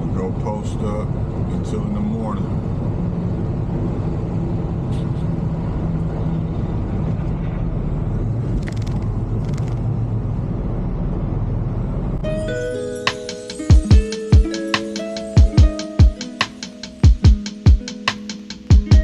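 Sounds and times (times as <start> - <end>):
truck diesel engine drone: 0.0 - 18.8
road noise: 0.0 - 19.0.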